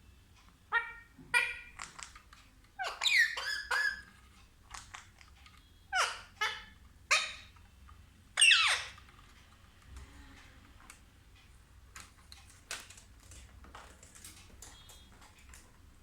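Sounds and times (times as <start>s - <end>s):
parrot shrill calls: 0.7s - 1.8s, 2.8s - 4.1s, 5.9s - 7.5s, 8.4s - 9.0s.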